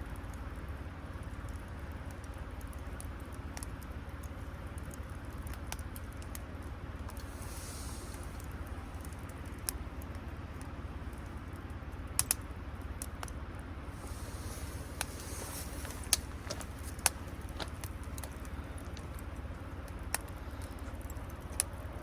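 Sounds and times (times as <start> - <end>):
brief hiss: 7.2 - 9.2, 13.9 - 17.3
light clicks and taps: 14.1 - 21.8.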